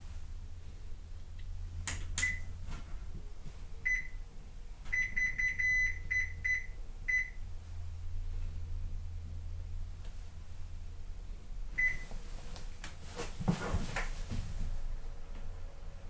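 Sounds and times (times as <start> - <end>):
steady low hum: 0.0 - 16.0
short beeps: 4.9 - 7.4.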